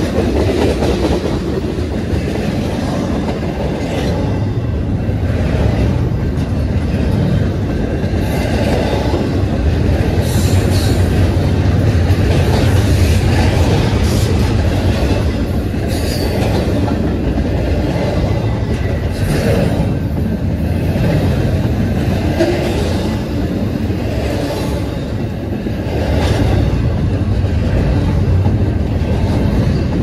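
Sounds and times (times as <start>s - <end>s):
freight train wheels rumbling on rail: 0.0s - 30.0s.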